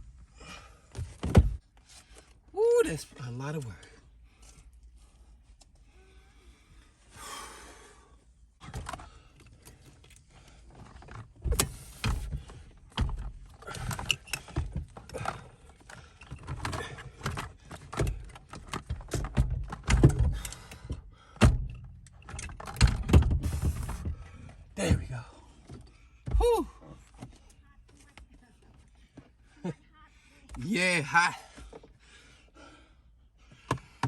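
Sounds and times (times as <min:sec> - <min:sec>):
car parts knocking and rattling: 0:00.9 - 0:01.7, 0:08.6 - 0:27.5.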